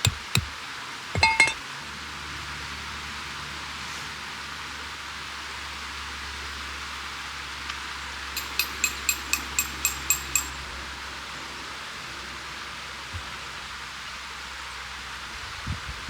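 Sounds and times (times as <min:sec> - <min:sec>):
ringing metallic clinks: 0:01.2 - 0:01.6, 0:08.4 - 0:10.7.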